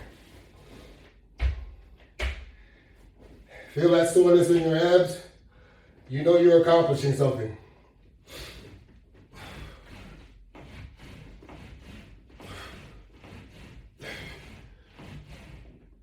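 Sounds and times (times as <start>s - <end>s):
man breathing hard: 5.4s - 6.1s, 7.7s - 15.7s.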